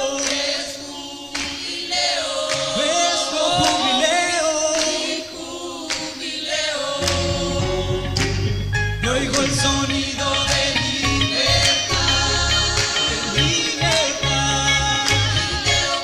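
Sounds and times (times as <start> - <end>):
choir singing a cappella: 0.0 - 16.0
low bass accompaniment: 7.0 - 15.9.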